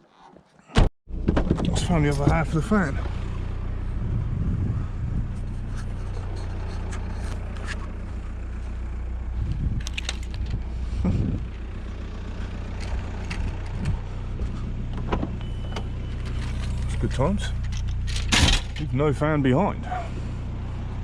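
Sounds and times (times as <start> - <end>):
car engine running: 1.1 - 21.0.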